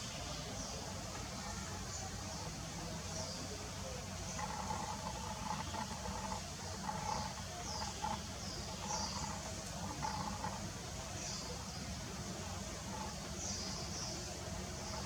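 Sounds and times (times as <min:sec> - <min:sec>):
small birds chirping: 0:04.2 - 0:10.6.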